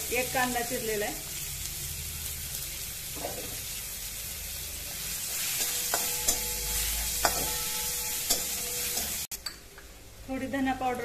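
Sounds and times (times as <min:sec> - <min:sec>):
onion sizzling in hot oil: 0:00.0 - 0:11.0
pan ringing faintly: 0:05.7 - 0:09.2
metal spatula clicking on pan: 0:08.2 - 0:09.6.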